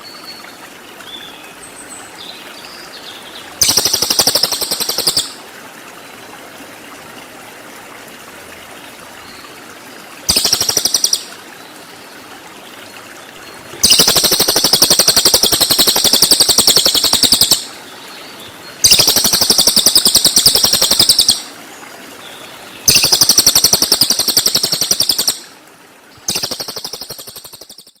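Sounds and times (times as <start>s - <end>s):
bird buzzy trills: 13.8s - 17.6s.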